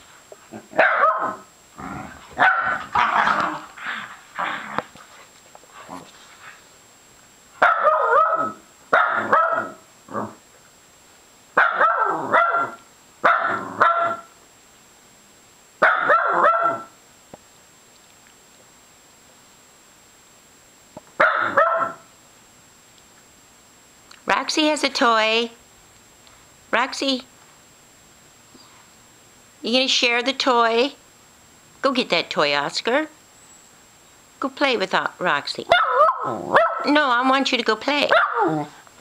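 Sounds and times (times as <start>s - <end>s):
dog barking: 0.8s - 1.5s, 2.4s - 3.4s, 7.6s - 9.8s, 11.6s - 14.3s, 15.8s - 16.9s, 21.2s - 22.1s, 35.7s - 36.9s, 38.1s - 38.6s.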